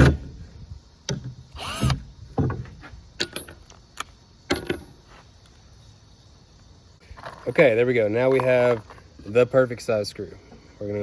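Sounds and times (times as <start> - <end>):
drill driver whirring: 1.6 - 2.0.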